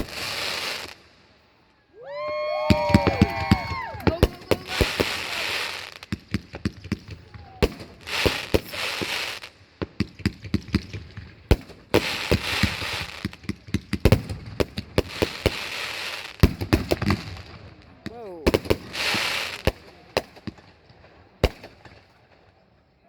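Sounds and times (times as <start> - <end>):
firework bangs and pops: 0.0 - 1.2, 2.2 - 22.6
firework crackling hiss: 0.0 - 1.2, 2.2 - 6.2, 7.7 - 9.6, 11.6 - 13.4, 15.0 - 17.5, 18.5 - 19.8.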